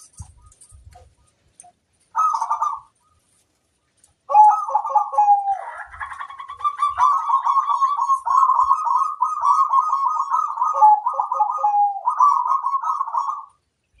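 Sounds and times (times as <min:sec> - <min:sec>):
doves cooing: 0:00.0 - 0:13.6.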